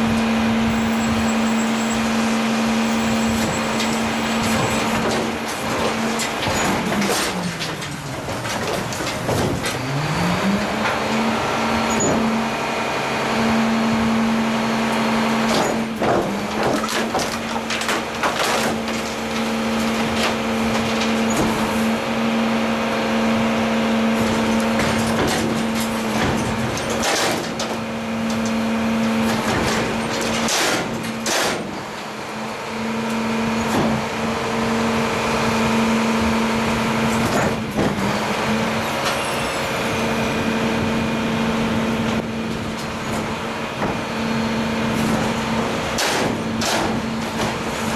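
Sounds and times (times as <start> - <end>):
truck engine running: 0.0 - 47.9
knocks and clanks: 3.2 - 11.2, 15.4 - 22.0, 24.2 - 32.1, 33.6 - 34.2, 37.1 - 39.9, 41.9 - 44.1, 44.9 - 47.9.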